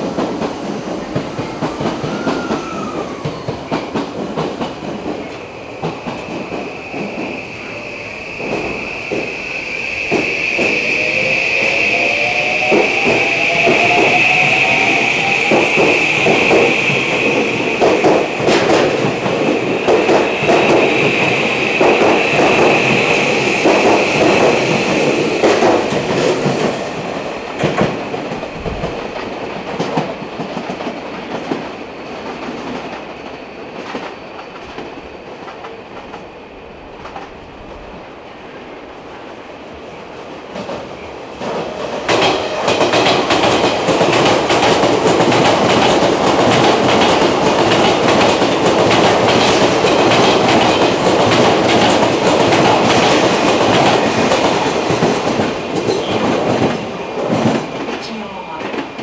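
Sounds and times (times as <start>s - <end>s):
high squeal: 6.6s - 18.4s.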